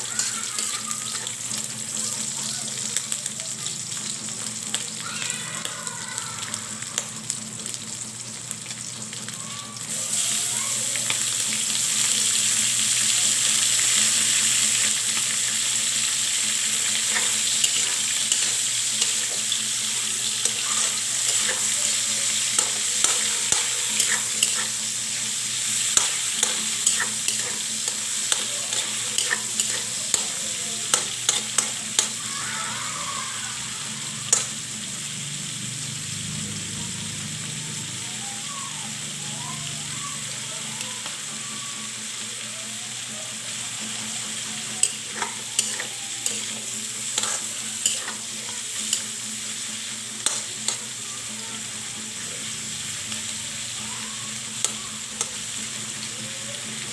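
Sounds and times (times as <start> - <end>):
food sizzling in a wok: 0.0 - 56.9
spatula scraping a pan: 16.7 - 32.3, 44.8 - 50.8.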